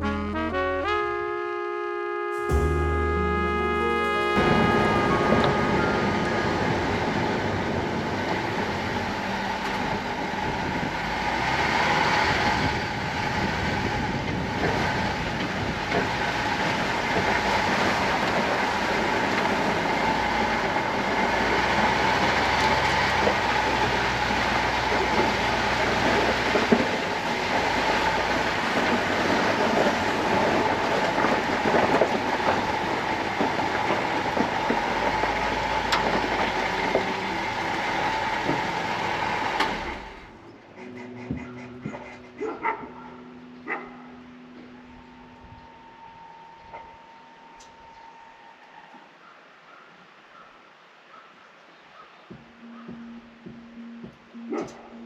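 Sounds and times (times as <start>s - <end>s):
road rumble: 2.5s - 49.2s
vehicle rattling and clattering: 6.4s - 42.1s.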